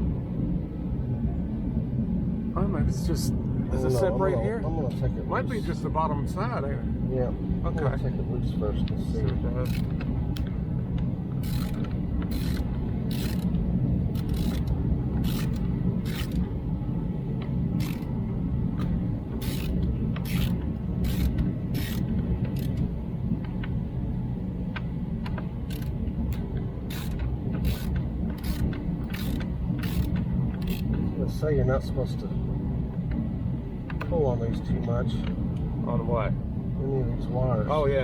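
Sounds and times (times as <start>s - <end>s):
steady low hum: 0.0s - 38.0s
hand ratchet clicking: 9.6s - 10.5s, 11.4s - 13.5s, 14.1s - 16.4s, 17.8s - 18.1s, 19.4s - 22.8s, 25.7s - 30.9s.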